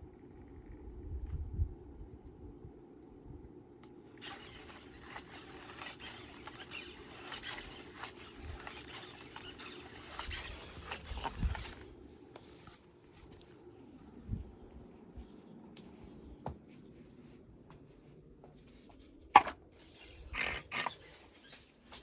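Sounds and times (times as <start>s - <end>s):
claws scratching at a surface: 4.2s - 11.9s.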